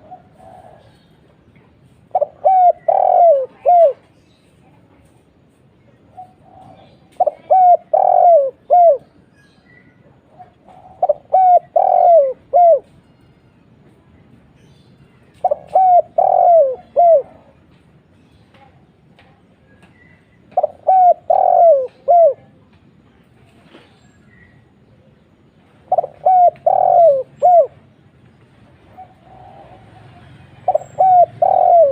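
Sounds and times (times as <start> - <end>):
dove cooing: 0.0 - 1.1, 2.1 - 4.1, 6.1 - 9.2, 10.2 - 13.0, 15.4 - 17.6, 20.5 - 22.6, 25.8 - 27.8, 28.8 - 31.9.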